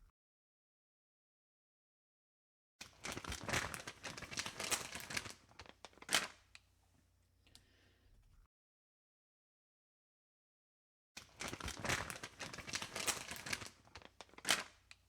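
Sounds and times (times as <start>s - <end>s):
thin material crinkling: 2.9s - 6.6s, 11.2s - 15.0s.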